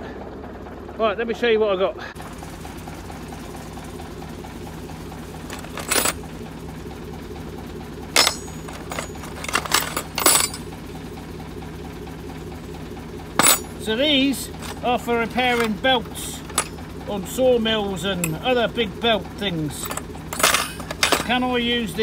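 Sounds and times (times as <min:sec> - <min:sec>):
snowmobile engine idling: 0:00.0 - 0:22.0
metal fasteners clinking: 0:05.4 - 0:06.3, 0:08.1 - 0:10.8, 0:13.4 - 0:17.0, 0:18.0 - 0:18.6, 0:19.7 - 0:21.6.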